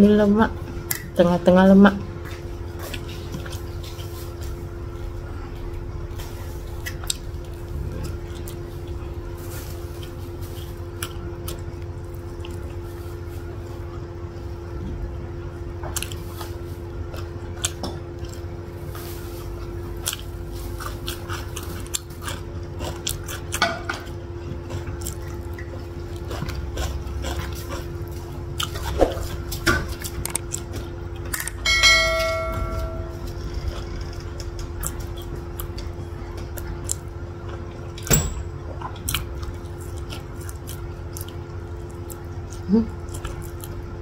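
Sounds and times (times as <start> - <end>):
chewing and wet mouth sounds: 0.1 - 31.6, 33.1 - 44.0
bell-like ding: 31.6 - 33.3.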